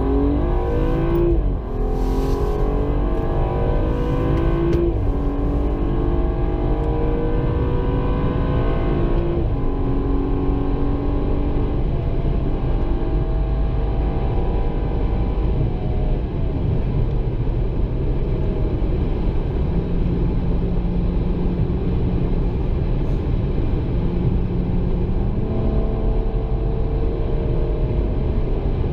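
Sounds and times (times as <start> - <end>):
low rumble: 0.0 - 7.7
car engine changing gear: 0.0 - 10.8.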